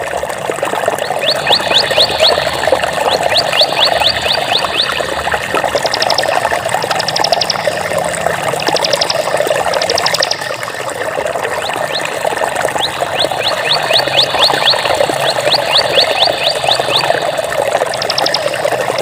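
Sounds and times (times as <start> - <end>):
water running: 0.0 - 19.0
high-pitched trills: 1.2 - 8.0, 8.6 - 10.9, 13.0 - 19.0.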